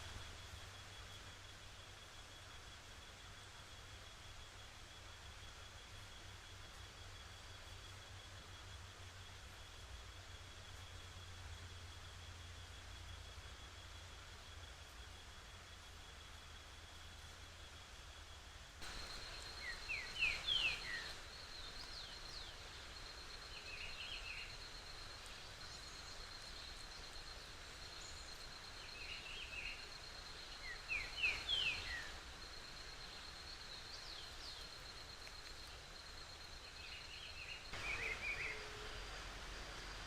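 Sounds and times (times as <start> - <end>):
insect trilling: 18.8 - 40.0
bird whistling call: 37.8 - 39.0.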